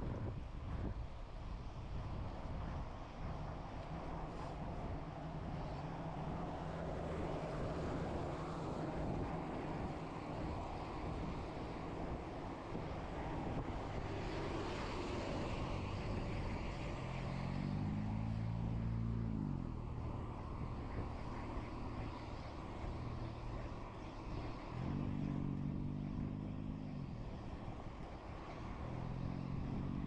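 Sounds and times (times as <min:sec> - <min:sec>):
traffic noise: 0:00.0 - 0:30.0
vehicle engine revving: 0:24.4 - 0:27.7, 0:28.6 - 0:30.0.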